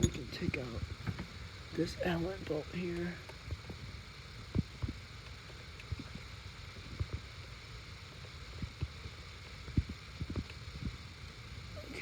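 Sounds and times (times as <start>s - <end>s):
allen wrench loosening bolt: 0.0s - 0.3s.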